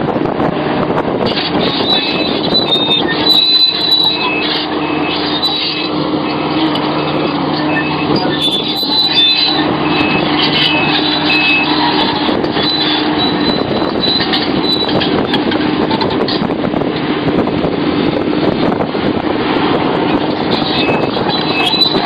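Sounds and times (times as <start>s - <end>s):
diesel engine running: 0.0s - 22.0s
hydraulic clatter: 1.1s - 22.0s
short high-pitched tones: 7.6s - 15.0s.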